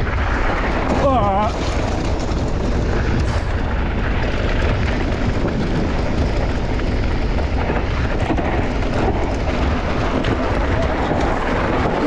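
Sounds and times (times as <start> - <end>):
bike knocks and rattles: 0.0 - 12.0
tyre noise on dirt: 0.0 - 12.0
wind rush on microphone: 0.0 - 12.0.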